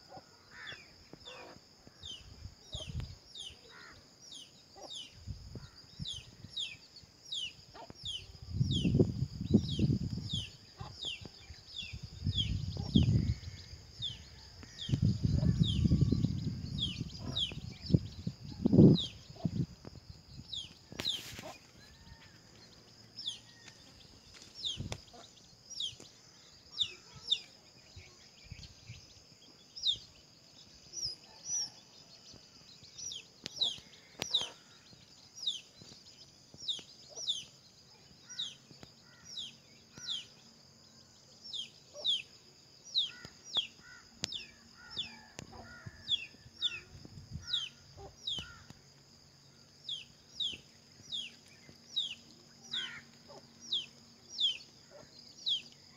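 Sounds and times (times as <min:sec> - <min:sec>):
wind rumbling on microphone: 0:02.2 - 0:03.4, 0:05.1 - 0:06.7, 0:07.9 - 0:22.0, 0:45.4 - 0:48.7.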